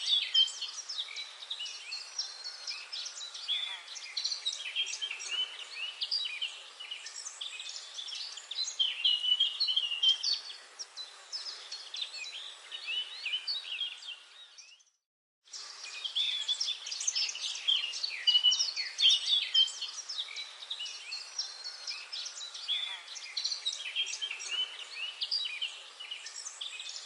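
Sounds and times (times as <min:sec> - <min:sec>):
birds chirping and trilling: 0:00.0 - 0:27.0.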